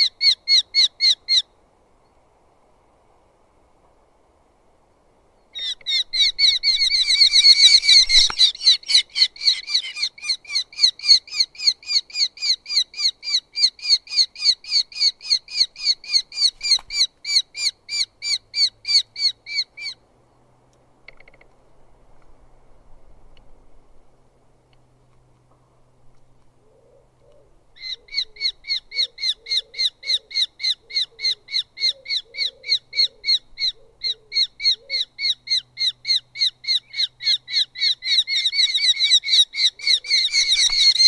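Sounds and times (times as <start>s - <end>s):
bird of prey sharp repeated calls: 0.0s - 1.5s, 5.6s - 20.0s, 26.7s - 41.0s.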